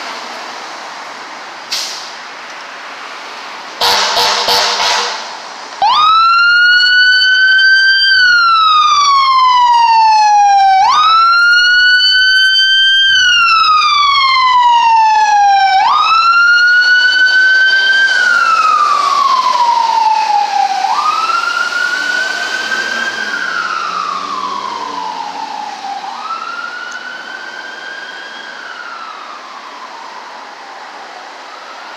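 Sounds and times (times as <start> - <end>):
loud horn blast: 3.8 - 5.4
fire engine siren wailing: 3.8 - 31.9.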